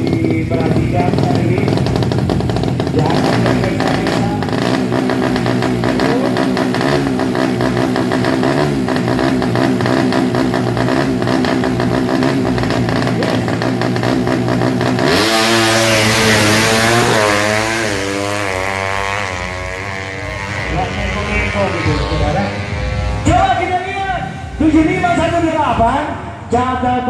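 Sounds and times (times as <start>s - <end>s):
motorbike engine revving: 0.0s - 26.4s.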